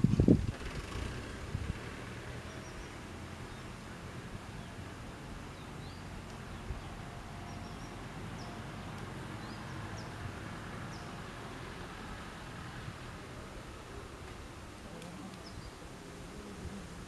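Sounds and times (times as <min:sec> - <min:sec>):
outdoor background noise: 0:00.0 - 0:17.0
bird chirps: 0:05.5 - 0:10.2.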